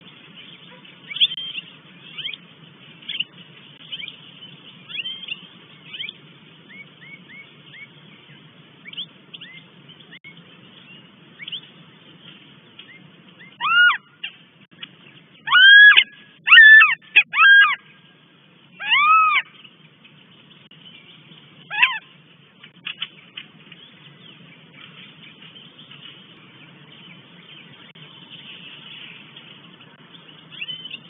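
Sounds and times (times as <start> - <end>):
hawk wailing calls: 13.6 - 14.1, 15.5 - 17.8, 18.8 - 19.5, 21.7 - 22.0.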